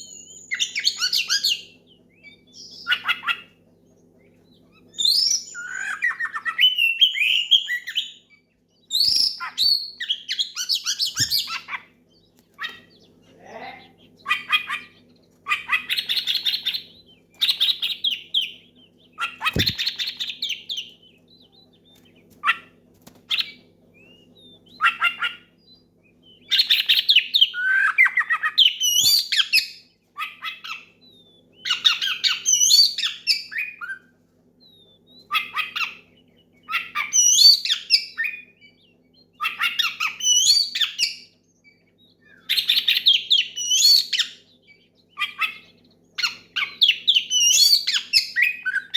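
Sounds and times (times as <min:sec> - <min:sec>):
bird singing harsh notes and whistles: 0:00.0 - 0:13.2, 0:14.0 - 0:48.9
faint steady hum: 0:00.0 - 0:48.9.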